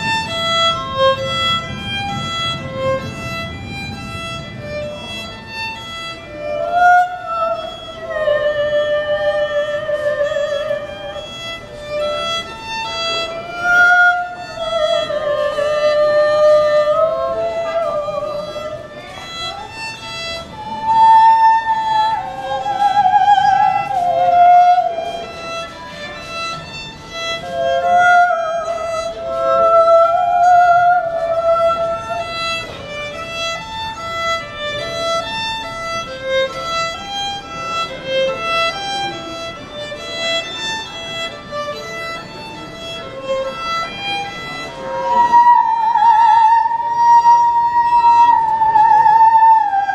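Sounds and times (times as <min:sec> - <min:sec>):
solo violin melody: 0:00.0 - 0:49.9.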